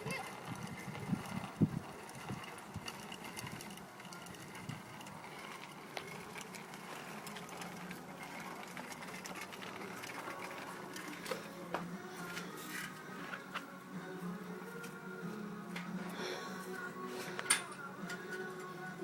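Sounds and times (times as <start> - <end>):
bicycle chain ticking: 0.0 - 11.6
bicycle whirring: 0.0 - 19.0.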